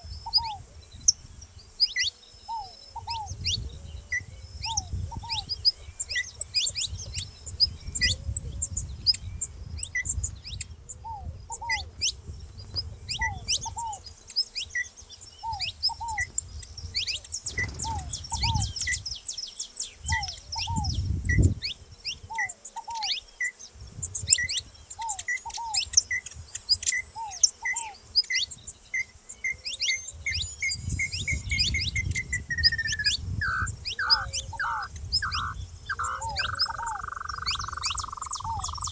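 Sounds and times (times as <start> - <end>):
finches chirping: 0.0 - 38.9
other birds calling: 0.0 - 38.9.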